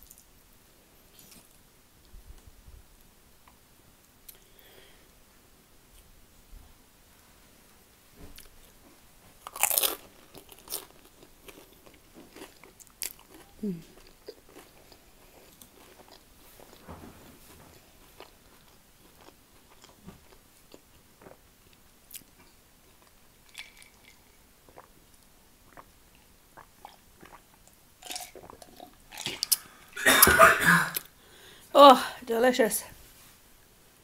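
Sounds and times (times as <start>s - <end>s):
chewing food: 9.4s - 17.0s, 17.7s - 29.7s
person gulping a drink: 23.5s - 25.0s, 25.6s - 31.1s
wet mouth clicks: 28.1s - 30.3s.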